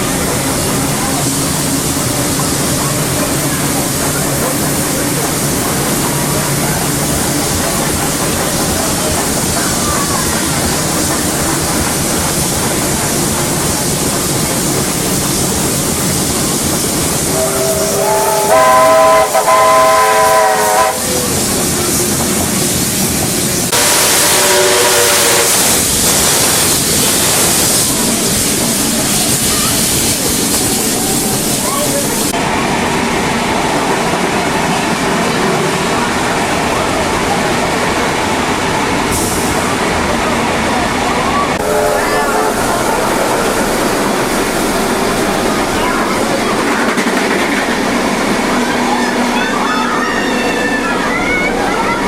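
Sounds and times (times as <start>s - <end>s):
steam hiss: 0.0s - 32.4s, 38.9s - 40.1s
train rolling on rails: 0.0s - 52.0s
steam whistle: 17.3s - 21.2s, 23.8s - 25.7s, 41.6s - 43.0s.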